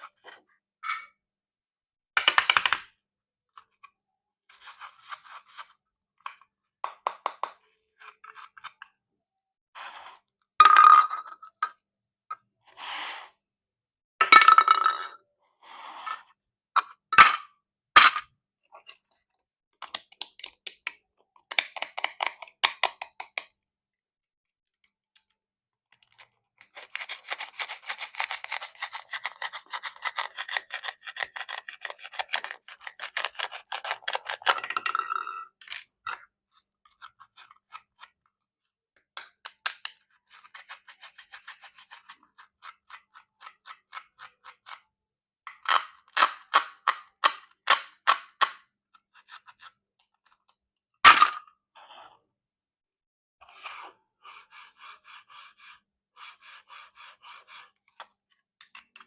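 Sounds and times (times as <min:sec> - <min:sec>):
plastic knife clicking and scraping: 0:07.1 - 0:08.9, 0:25.9 - 0:34.6, 0:36.5 - 0:38.3, 0:39.2 - 0:44.9, 0:57.4 - 0:59.0.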